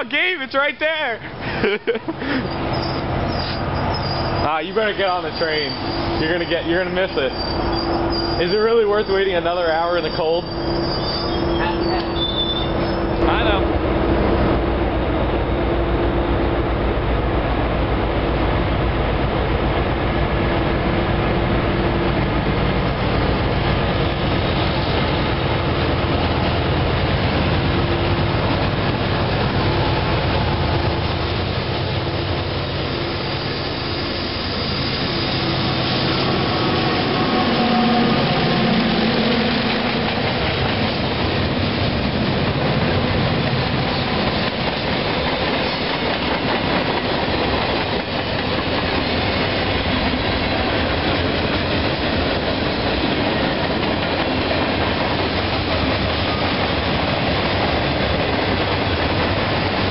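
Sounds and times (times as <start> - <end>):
diesel locomotive rumble: 0.0 - 59.9
train cars rolling past: 0.0 - 59.9.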